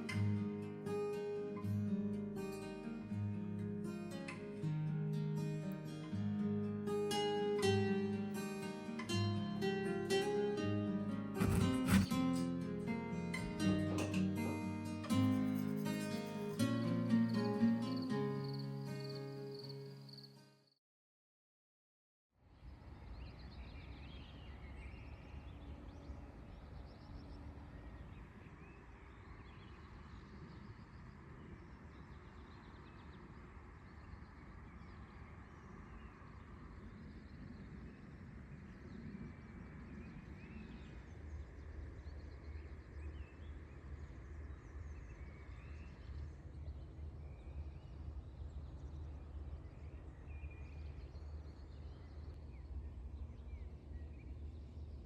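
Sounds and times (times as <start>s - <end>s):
small birds chirping: 11.4s - 20.4s, 23.0s - 55.0s.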